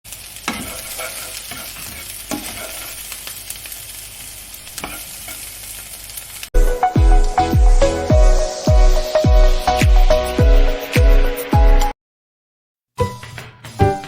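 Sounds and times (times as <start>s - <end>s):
patties sizzling in oil: 0.1s - 10.8s
spatula scraping pan: 0.5s - 3.2s, 4.7s - 5.5s.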